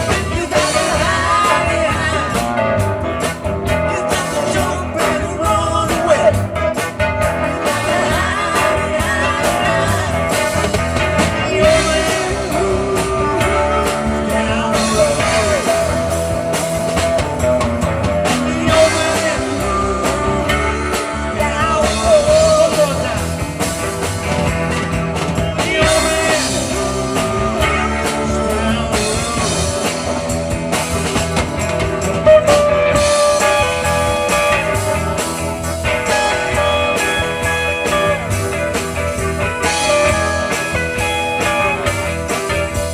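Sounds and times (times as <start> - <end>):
live rock band playing: 0.0 - 42.9.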